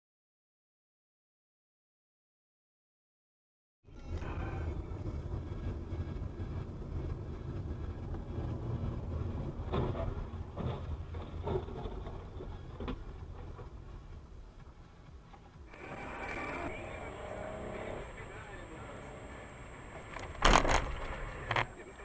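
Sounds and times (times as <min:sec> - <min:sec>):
car engine and road noise: 0:04.0 - 0:22.0.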